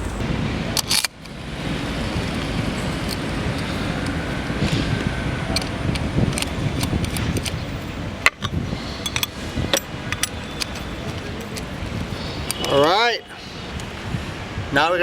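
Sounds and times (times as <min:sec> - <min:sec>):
steady background noise: 0:00.0 - 0:15.0
metallic clicks and clinks: 0:09.0 - 0:12.8.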